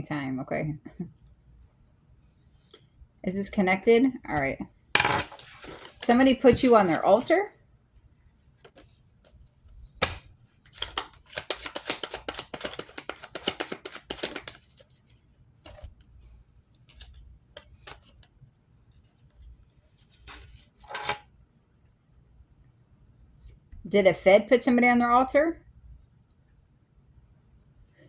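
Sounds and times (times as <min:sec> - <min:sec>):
cards being shuffled: 0:05.0 - 0:07.4, 0:10.0 - 0:16.0, 0:16.8 - 0:18.3, 0:20.0 - 0:21.2.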